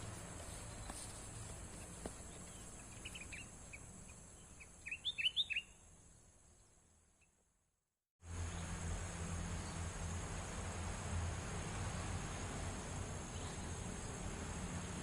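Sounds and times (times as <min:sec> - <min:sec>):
songbird chirping: 0:00.1 - 0:07.4, 0:13.3 - 0:14.3.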